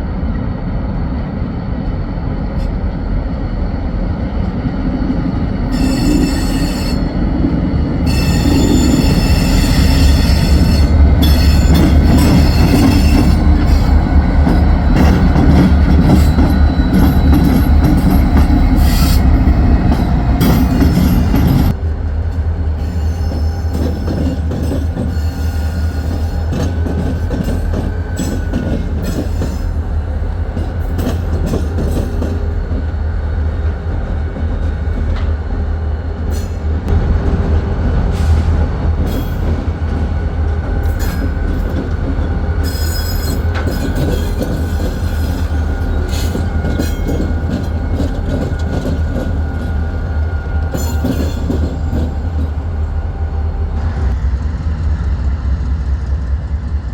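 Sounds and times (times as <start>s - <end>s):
train wheels rumbling on rails: 0.0s - 56.9s
faint wheel squeal: 5.7s - 7.2s.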